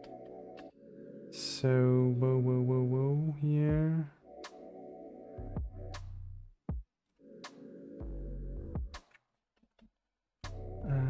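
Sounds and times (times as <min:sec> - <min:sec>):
electronic music with deep bass: 0:03.7 - 0:06.4, 0:07.4 - 0:09.0, 0:10.5 - 0:11.0.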